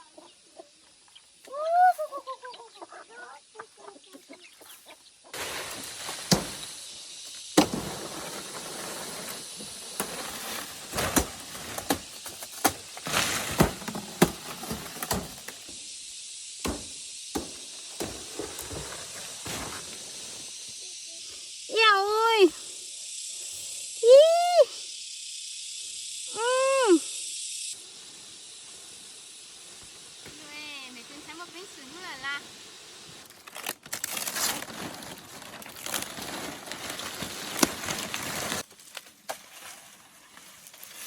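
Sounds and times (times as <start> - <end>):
chicken clucking: 2.0 - 5.1
rustling hiss: 4.6 - 41.0.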